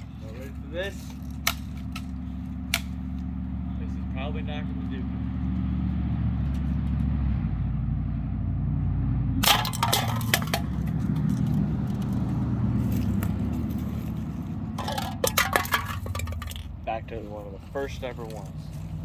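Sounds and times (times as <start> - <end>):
low hum: 0.0 - 16.9
aluminium cans clattering: 9.4 - 16.7.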